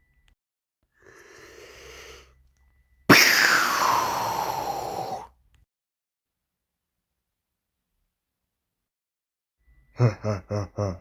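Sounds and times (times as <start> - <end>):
loud blast with falling tone: 3.1 - 4.5.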